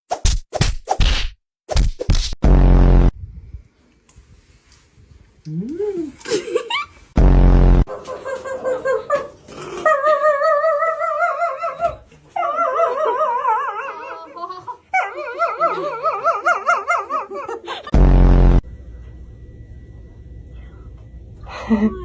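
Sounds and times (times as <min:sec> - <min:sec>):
low buzzing groan: 0:17.9 - 0:22.0.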